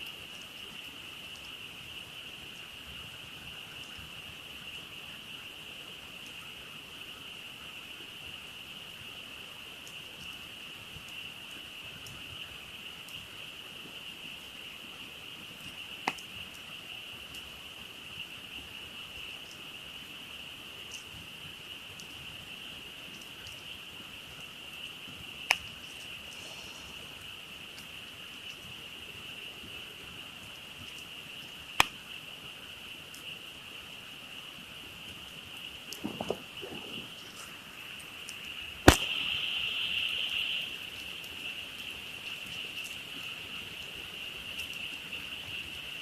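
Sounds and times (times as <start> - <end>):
campfire crackling: 0.0 - 46.0
frogs calling: 15.6 - 46.0
burning wood popping: 25.4 - 28.7, 31.8 - 32.1, 35.0 - 40.2.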